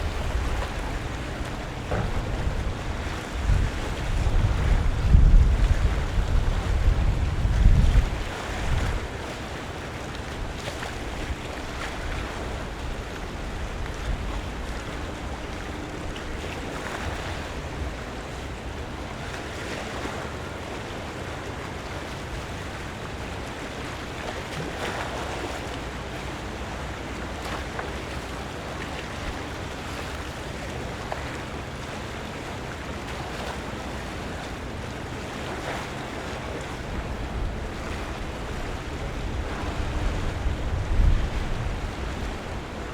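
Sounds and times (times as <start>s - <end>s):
wind on microphone: 0.0s - 9.3s, 35.3s - 42.9s
water lapping: 0.0s - 42.9s.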